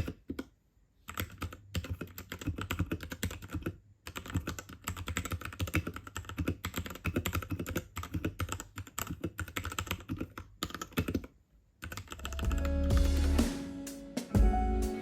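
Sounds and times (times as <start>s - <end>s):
mechanical keyboard typing: 0.0s - 13.2s
music: 12.3s - 15.0s.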